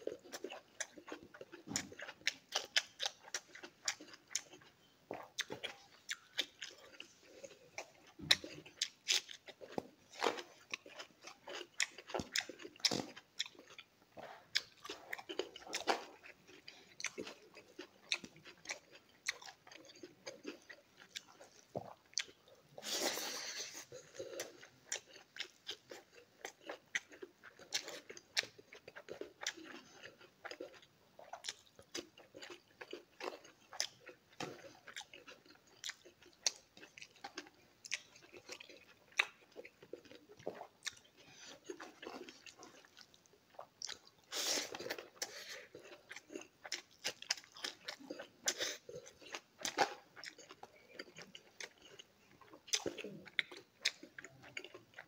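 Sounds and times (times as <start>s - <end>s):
close chewing and mouth smacks: 0.0s - 55.0s.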